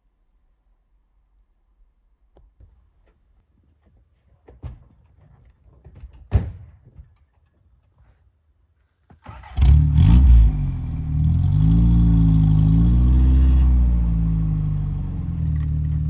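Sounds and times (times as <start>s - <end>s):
handling knocks and clicks: 2.4s - 8.2s.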